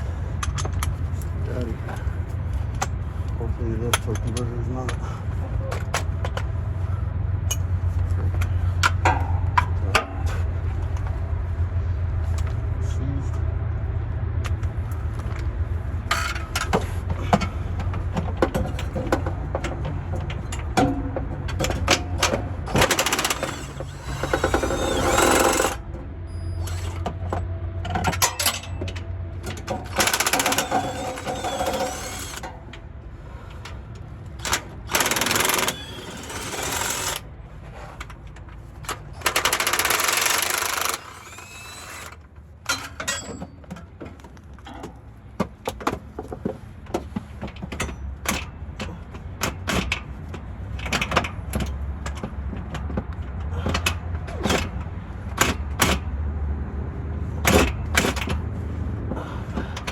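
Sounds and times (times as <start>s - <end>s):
metal clicks and clanks: 16.1s - 26.0s, 26.6s - 32.9s, 33.5s - 37.3s, 38.0s - 45.0s
impact wrench hammering: 20.5s - 25.9s, 29.5s - 32.5s, 34.4s - 37.2s, 39.2s - 43.4s.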